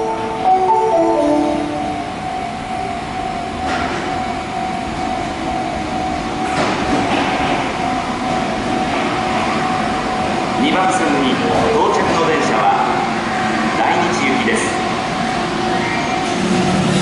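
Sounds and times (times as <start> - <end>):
steady high tone: 0.0 - 13.2
subway train running: 0.0 - 17.0.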